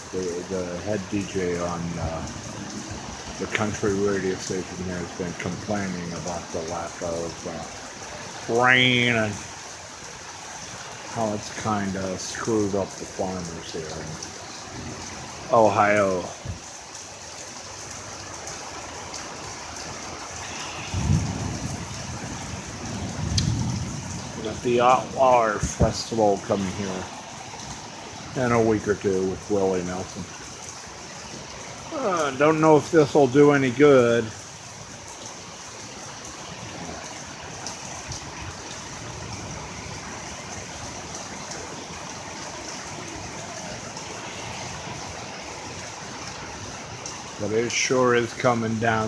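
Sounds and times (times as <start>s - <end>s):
heavy rain pouring: 0.0s - 49.0s
low thunder rumble: 20.4s - 27.7s.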